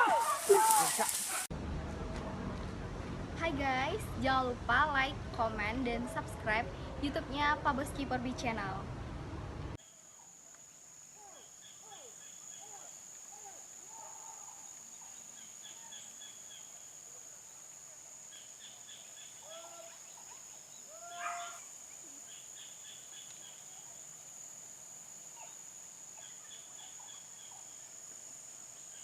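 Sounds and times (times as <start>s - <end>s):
high insect drone: 9.8s - 29.0s.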